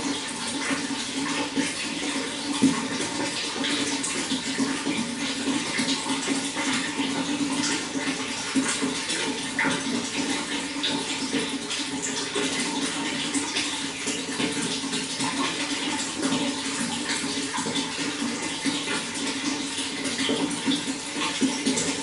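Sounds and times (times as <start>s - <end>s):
running water splashing: 0.0s - 22.0s.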